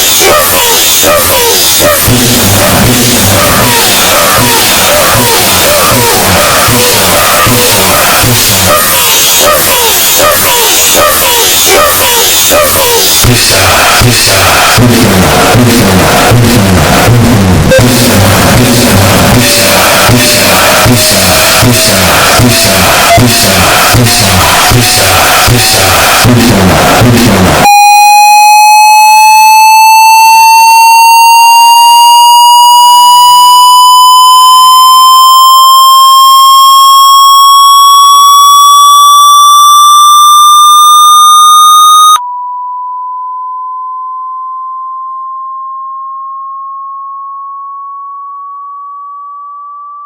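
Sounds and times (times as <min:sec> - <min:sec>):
harsh buzzy rising test tone: 0:14.6 - 0:42.2
pure rising tone: 0:27.6 - 0:42.2.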